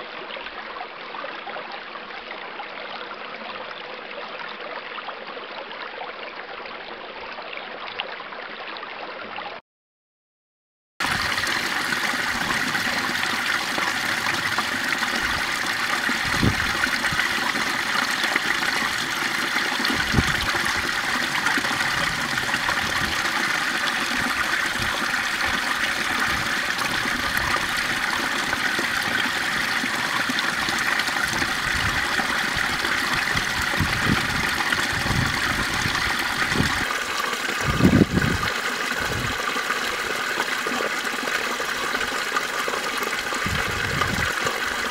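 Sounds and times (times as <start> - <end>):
water rushing: 11.0 - 44.9.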